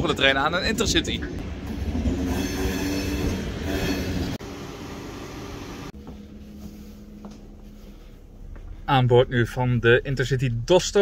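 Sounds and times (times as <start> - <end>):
high wheel squealing: 2.0 - 4.4.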